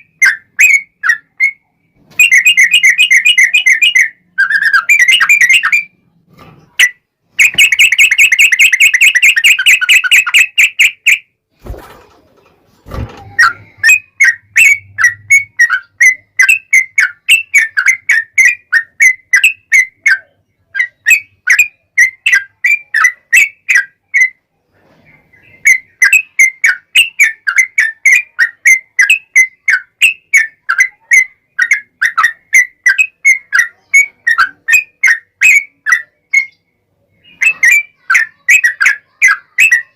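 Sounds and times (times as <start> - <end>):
bird song trilling and chattering: 0.0 - 11.4, 13.2 - 39.9.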